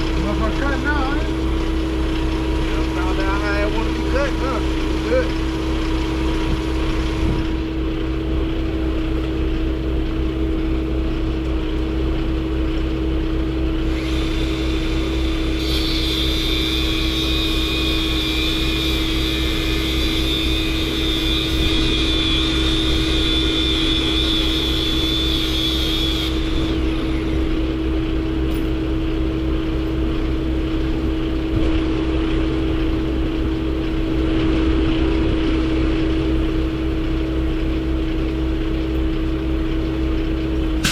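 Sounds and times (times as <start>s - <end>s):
engine humming: 0.0s - 40.9s
high whine: 13.5s - 37.5s, 40.5s - 40.9s.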